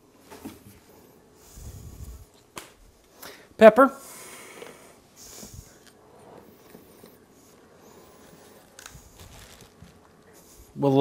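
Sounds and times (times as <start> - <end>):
soft rustling and scraping: 5.2 - 11.0.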